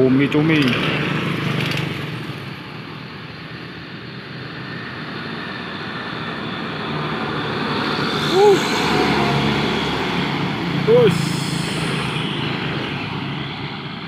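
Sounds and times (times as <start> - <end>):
truck engine and road noise: 0.0 - 14.0
person shouting: 8.2 - 9.0, 10.8 - 12.2.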